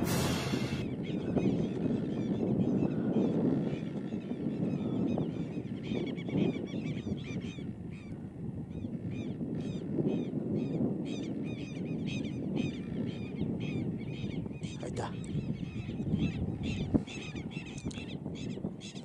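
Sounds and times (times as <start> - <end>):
steady low rumble: 0.0 - 1.4.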